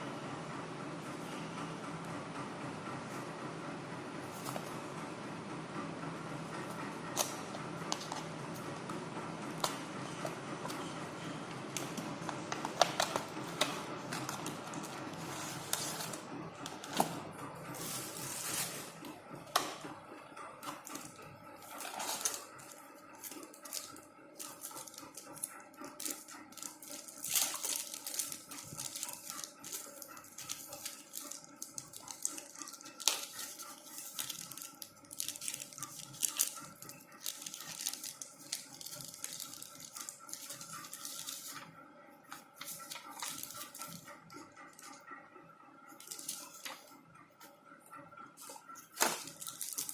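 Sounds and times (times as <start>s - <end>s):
packaging rustling: 11.7s - 19.1s, 20.6s - 41.7s, 42.3s - 44.0s, 46.0s - 46.8s, 48.4s - 49.9s.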